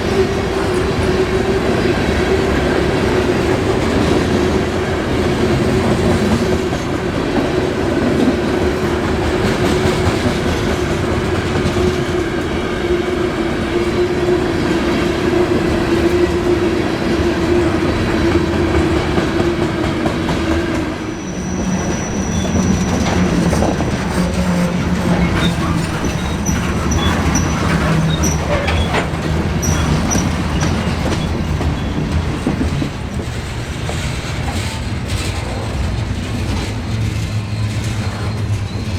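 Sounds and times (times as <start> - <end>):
freight train rolling past: 0.0 - 38.9
train cars clattering over rail joints: 2.6 - 12.6, 17.2 - 38.9
high wheel squeals: 21.0 - 32.6, 37.4 - 38.9.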